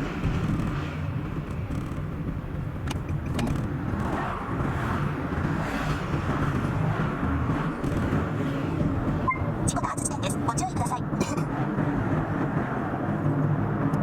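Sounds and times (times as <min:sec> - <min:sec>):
car driving road noise: 0:00.0 - 0:14.0.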